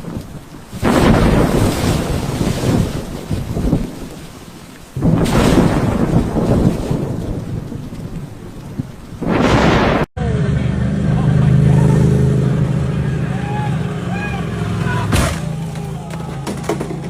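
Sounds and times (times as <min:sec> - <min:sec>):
rain hissing: 0:00.0 - 0:10.1
thunder rumbling: 0:00.0 - 0:10.4.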